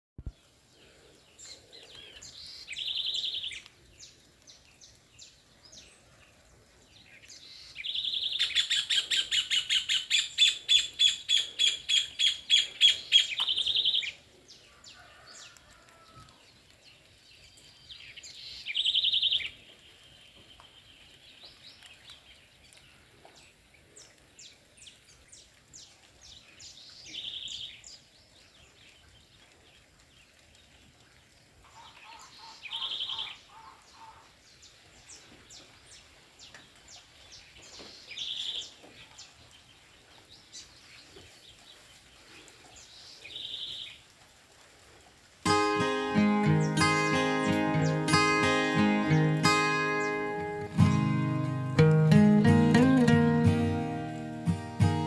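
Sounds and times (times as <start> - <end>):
songbirds singing and chirping: 0.2 - 44.1, 45.5 - 55.0.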